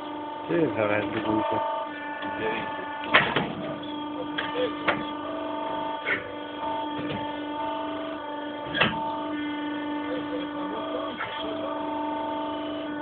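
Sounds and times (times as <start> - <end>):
hydraulic pump humming: 0.0 - 13.0.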